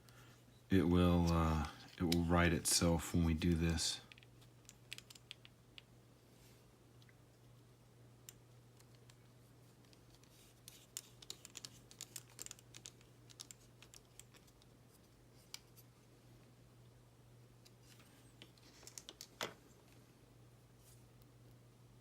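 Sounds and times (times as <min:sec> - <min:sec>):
low steady hum: 0:00.0 - 0:22.0
small plastic parts clicking: 0:03.6 - 0:05.9, 0:08.2 - 0:14.7, 0:17.6 - 0:19.6.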